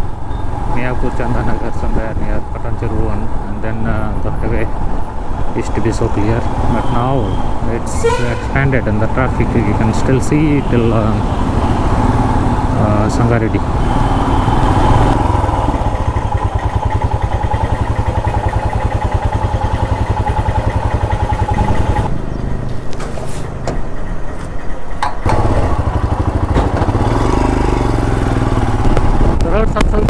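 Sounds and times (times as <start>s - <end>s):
motorcycle engine running: 8.9s - 30.0s.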